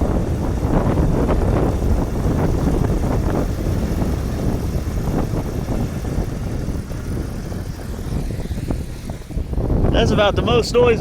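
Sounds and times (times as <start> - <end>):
wind gusts buffeting microphone: 0.0 - 11.0
wind turbine mechanical drone: 0.0 - 11.0.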